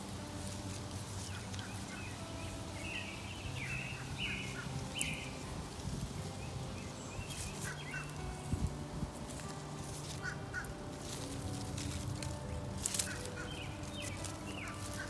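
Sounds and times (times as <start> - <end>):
bird calls: 1.2 - 5.5, 6.2 - 8.4, 10.0 - 15.0
plastic netting rustling: 7.3 - 15.0.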